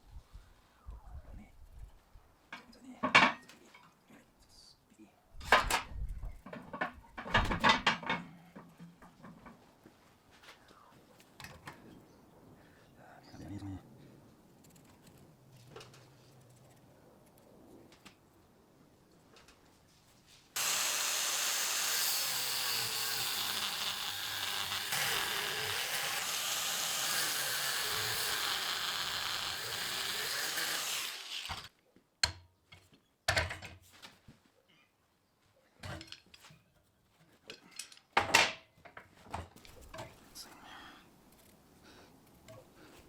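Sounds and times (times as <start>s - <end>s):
power tool on steel: 20.6s - 31.7s.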